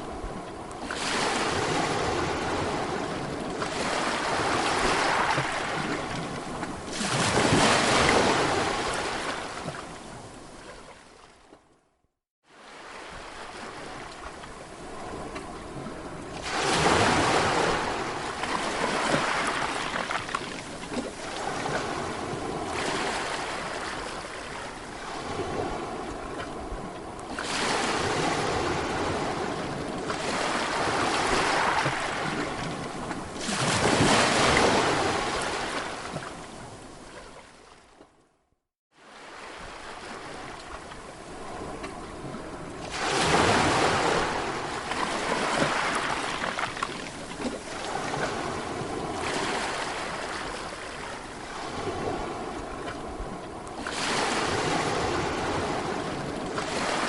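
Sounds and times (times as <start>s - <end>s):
sea waves breaking: 0.0s - 11.5s, 12.4s - 38.1s, 38.9s - 57.0s.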